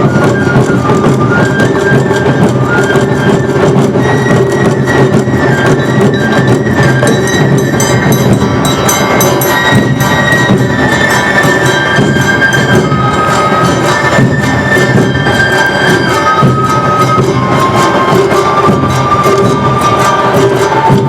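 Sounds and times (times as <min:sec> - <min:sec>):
bamboo flute melody: 0:00.0 - 0:21.0
drums beating: 0:00.0 - 0:21.0
hand gong clanging: 0:07.1 - 0:11.8.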